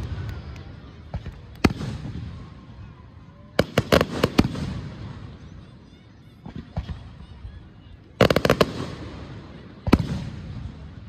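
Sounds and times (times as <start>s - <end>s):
fireworks bangs with echo: 0.0s - 2.8s, 3.5s - 5.7s, 6.4s - 11.0s.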